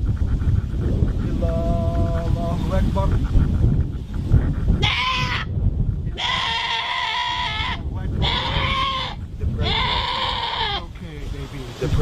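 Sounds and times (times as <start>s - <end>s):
goat bleating: 4.8s - 5.5s, 6.2s - 10.9s.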